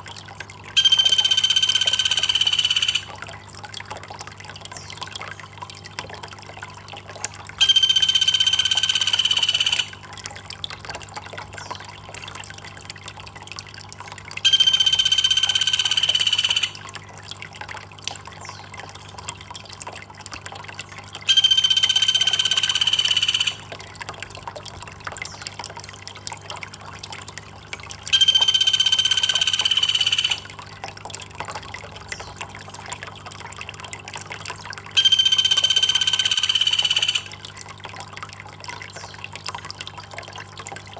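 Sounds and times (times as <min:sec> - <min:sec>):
water trickling: 0:00.0 - 0:40.9
high-pitched call: 0:00.8 - 0:03.2, 0:07.6 - 0:10.0, 0:14.4 - 0:16.8, 0:21.3 - 0:23.7, 0:28.1 - 0:30.5, 0:35.0 - 0:37.4.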